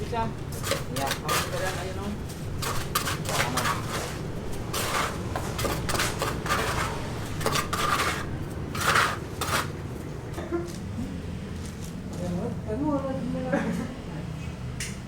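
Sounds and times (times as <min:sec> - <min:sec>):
hard objects scraping and clinking: 0:00.0 - 0:10.4.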